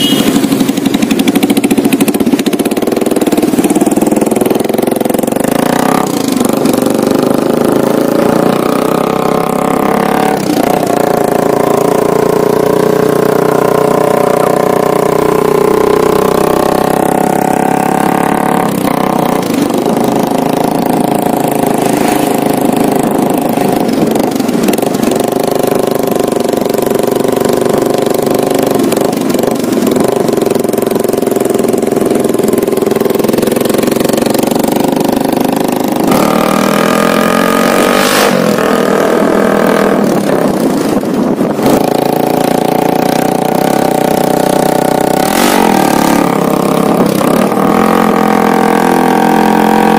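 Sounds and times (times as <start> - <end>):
motorcycle engine exhaust note: 0.0 - 49.9.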